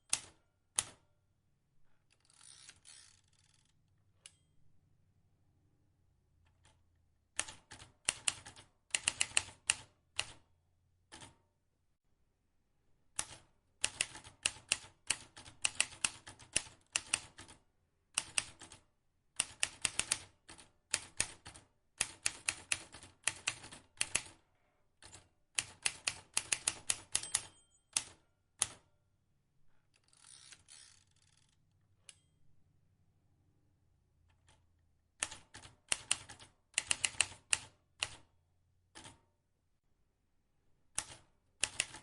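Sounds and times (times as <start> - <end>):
typewriter key strikes: 26.4 - 28.8.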